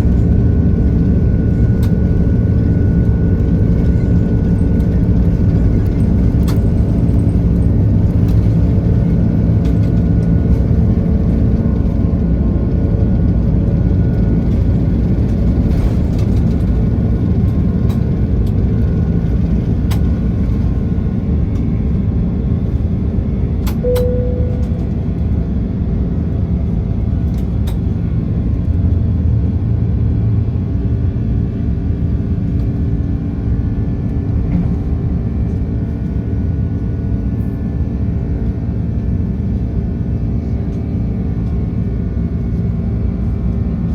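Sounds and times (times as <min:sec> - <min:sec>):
airliner cabin rumble: 0:00.0 - 0:43.9
short cabin tone: 0:23.6 - 0:25.4.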